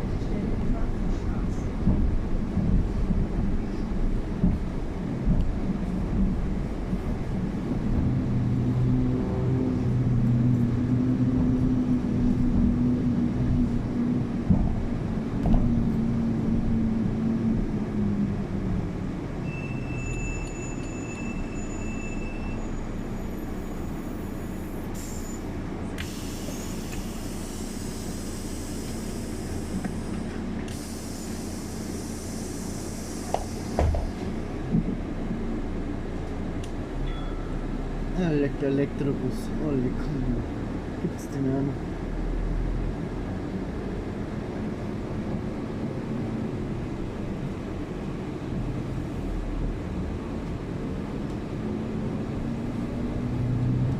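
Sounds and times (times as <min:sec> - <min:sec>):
bus drivetrain hum: 0:00.0 - 0:53.9
high steady squeal: 0:19.4 - 0:34.5
compressed air hisses: 0:26.0 - 0:34.4.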